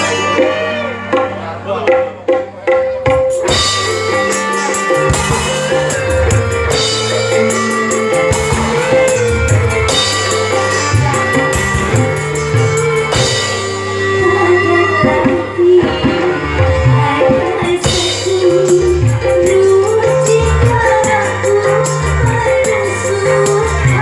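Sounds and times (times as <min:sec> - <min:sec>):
drum kit: 0:00.0 - 0:24.0
guitar: 0:00.0 - 0:24.0.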